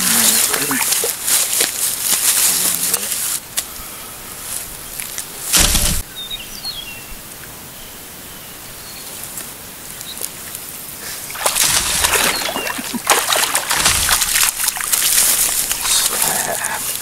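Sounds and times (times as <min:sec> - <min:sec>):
fish splashing in water: 0:11.3 - 0:16.4.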